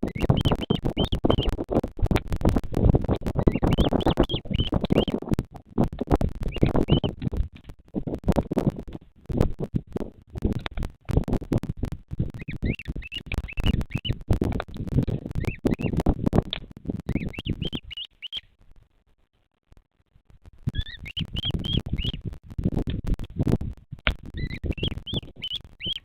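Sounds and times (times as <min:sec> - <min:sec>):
bird chirping: 0:00.0 - 0:01.6, 0:03.4 - 0:05.3, 0:06.4 - 0:07.2, 0:12.4 - 0:14.2, 0:15.1 - 0:16.0, 0:17.1 - 0:18.5, 0:20.7 - 0:22.2, 0:24.3 - 0:26.0
crackling and thumping on microphone: 0:00.0 - 0:26.0.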